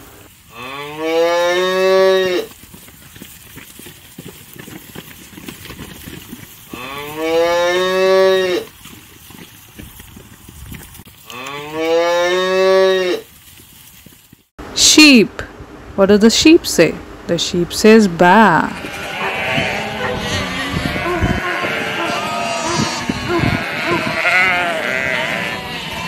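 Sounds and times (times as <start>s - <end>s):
cow mooing: 0.5s - 2.5s, 6.8s - 8.7s, 11.3s - 13.3s, 18.6s - 26.0s.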